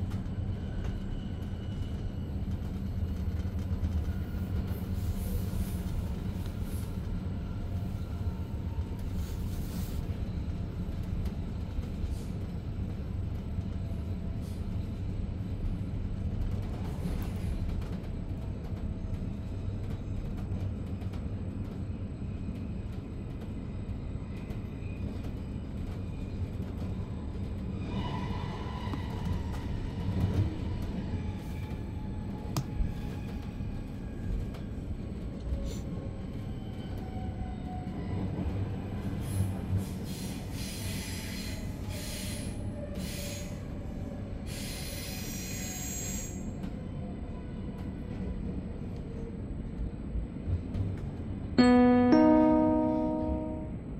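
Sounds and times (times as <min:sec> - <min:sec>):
train rolling rumble: 0:00.0 - 0:53.9
higher tone: 0:51.6 - 0:53.9.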